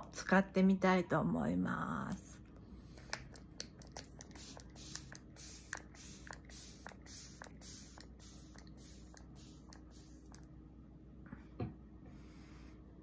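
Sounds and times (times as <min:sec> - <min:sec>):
spray bottle hissing: 0:03.1 - 0:10.5.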